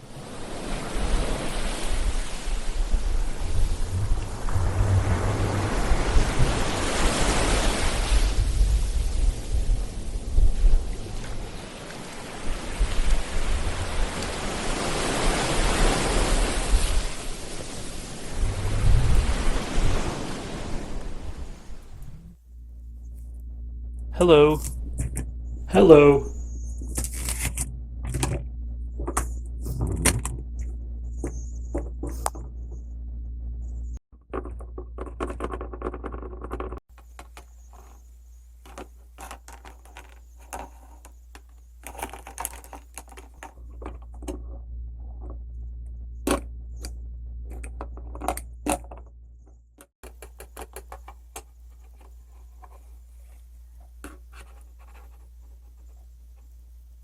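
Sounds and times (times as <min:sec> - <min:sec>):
low steady hum: 0:02.0 - 0:06.8, 0:17.1 - 0:57.0.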